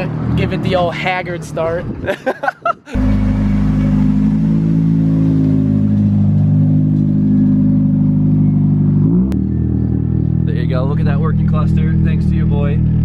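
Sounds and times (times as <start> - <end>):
car engine running loud: 2.9 - 13.0.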